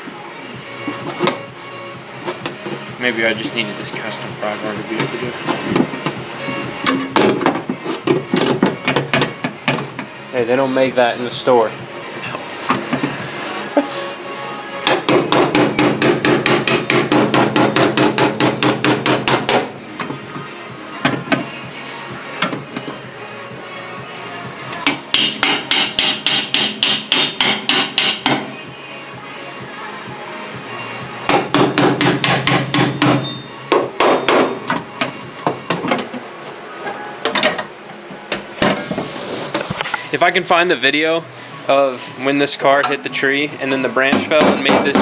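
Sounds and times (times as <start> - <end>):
hammer tapping on steel panel: 14.9 - 19.7, 24.9 - 28.5, 31.3 - 34.6.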